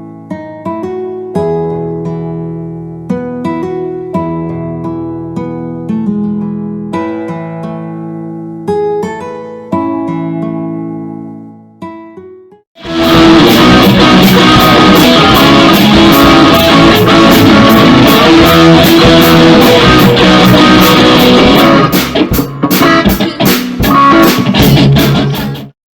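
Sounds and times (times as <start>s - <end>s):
drum kit beat: 12.8s - 25.7s
rock guitar: 12.8s - 25.8s.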